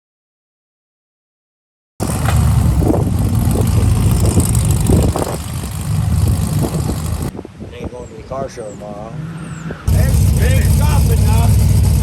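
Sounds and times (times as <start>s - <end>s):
car engine running: 2.0s - 7.3s, 9.9s - 12.0s
wind rumbling on microphone: 2.0s - 10.6s.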